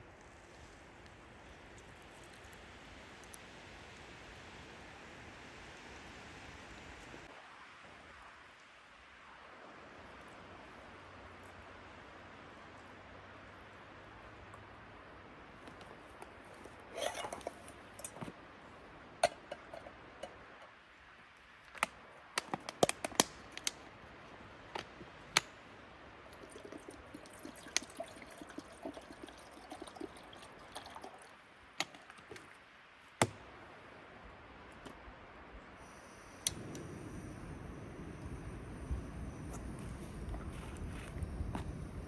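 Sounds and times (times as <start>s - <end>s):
faint steady hiss: 0.0s - 42.0s
soft liquid sounds: 15.8s - 18.3s, 26.3s - 32.6s, 35.8s - 42.0s.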